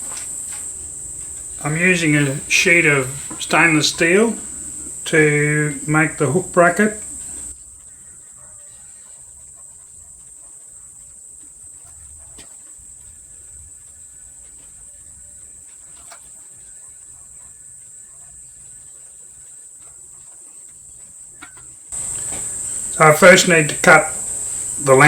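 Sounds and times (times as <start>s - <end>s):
high-pitched insect-like trill: 22.0s - 25.0s.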